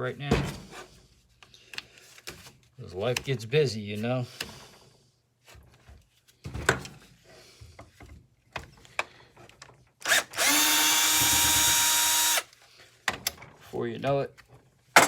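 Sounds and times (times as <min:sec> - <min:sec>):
power drill running: 0:10.0 - 0:12.5.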